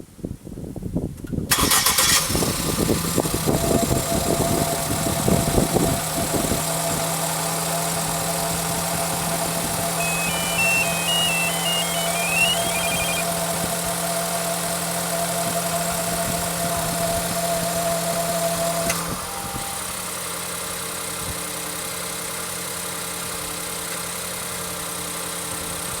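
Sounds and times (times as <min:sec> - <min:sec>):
steady whine: 0:08.2 - 0:13.3.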